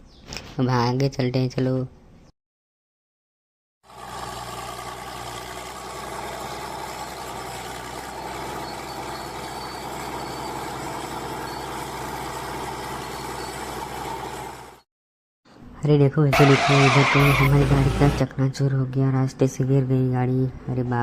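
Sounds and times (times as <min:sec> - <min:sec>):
truck engine running steadily: 0:03.9 - 0:14.8, 0:16.5 - 0:18.2.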